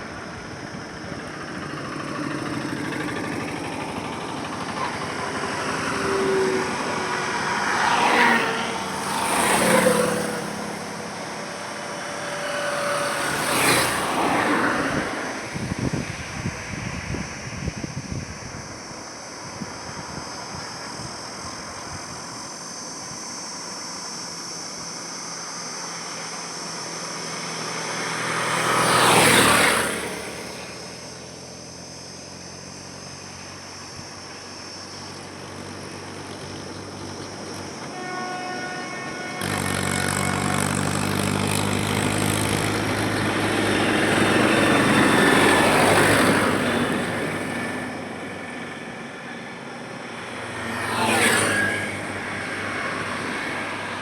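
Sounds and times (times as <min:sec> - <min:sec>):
heavy vehicle engine rumbling: 0:00.0 - 0:50.8
vehicles passing by: 0:00.0 - 0:54.0
car horn: 0:04.8 - 0:15.5, 0:37.7 - 0:41.2.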